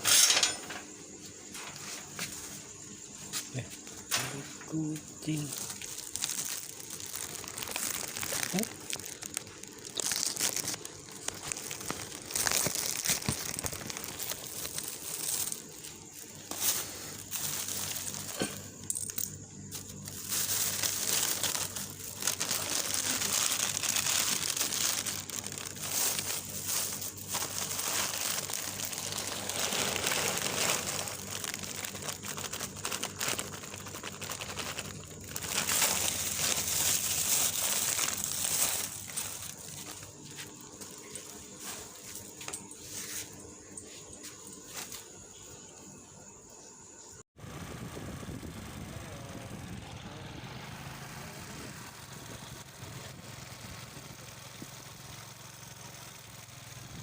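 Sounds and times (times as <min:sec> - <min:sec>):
faint low hum: 0:00.3 - 0:50.5
crinkling and rustling: 0:04.0 - 0:43.4, 0:44.0 - 0:45.2.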